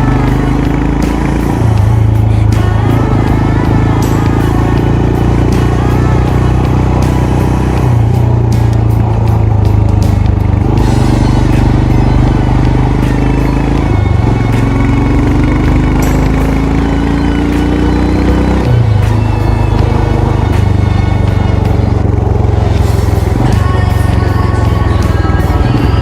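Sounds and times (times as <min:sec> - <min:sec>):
motorcycle engine thumping: 0:07.8 - 0:16.6.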